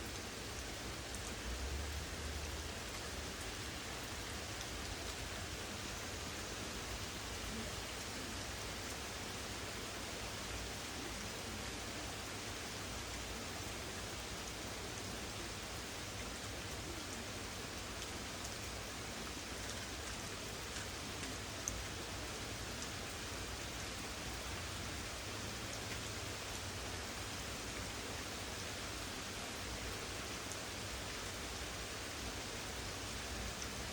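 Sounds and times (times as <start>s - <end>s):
raindrop ticks: 0.0s - 6.5s, 16.2s - 24.7s, 25.3s - 27.0s, 33.4s - 33.9s
steady rain hiss: 0.0s - 33.9s.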